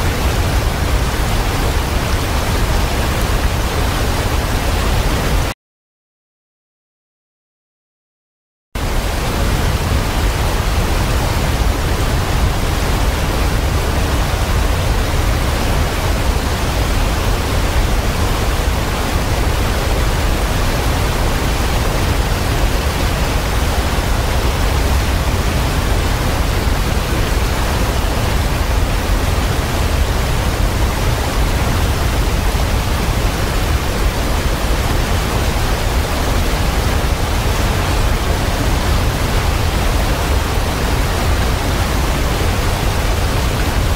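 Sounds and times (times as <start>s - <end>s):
waterfall rushing: 0.0s - 5.5s, 8.8s - 43.9s.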